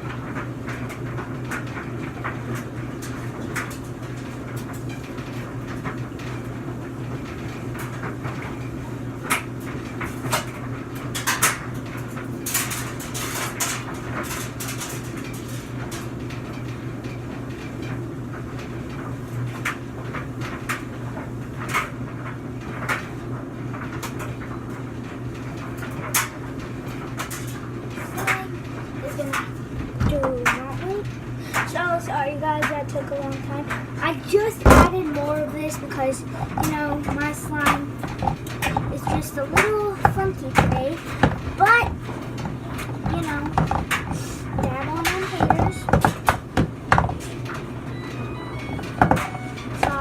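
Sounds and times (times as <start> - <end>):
laundry machine humming: 0.0 - 50.0
knocks and clicks: 34.7 - 35.1, 36.4 - 50.0.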